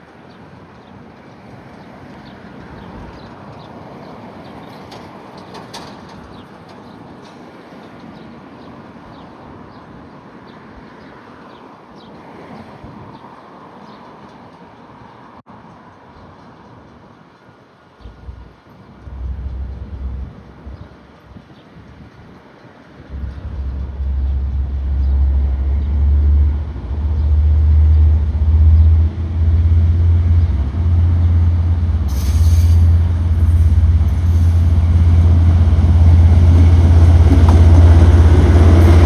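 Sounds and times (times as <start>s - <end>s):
outdoor background rumble: 18.0s - 21.0s, 23.1s - 39.0s.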